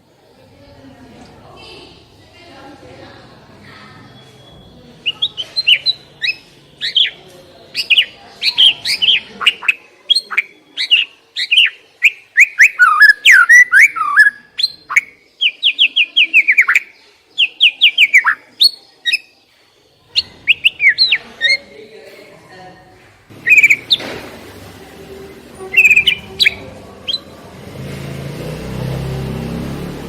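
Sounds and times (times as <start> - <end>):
songbird chirps and whistles: 4.0 - 21.7, 23.4 - 24.2, 25.6 - 27.4.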